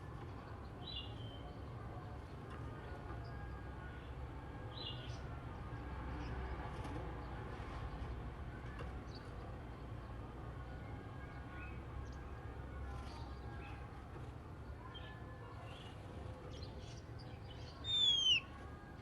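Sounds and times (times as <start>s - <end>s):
bird chirping and whistling: 17.8s - 18.4s.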